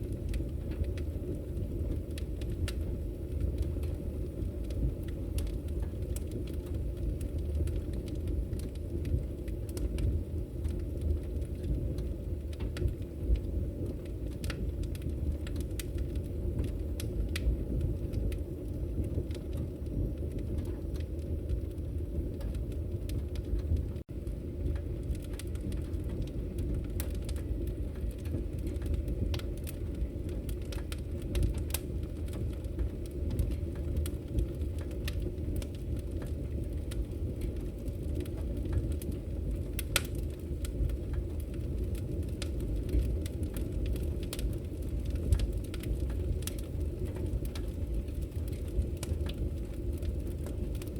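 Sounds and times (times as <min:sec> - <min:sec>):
fire crackles and pops: 0:00.0 - 0:50.9
fire flame rumble: 0:00.0 - 0:50.9.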